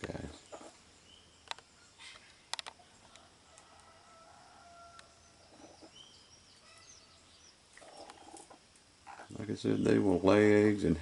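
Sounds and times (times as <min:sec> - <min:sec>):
hen calling low: 0:06.6 - 0:09.9.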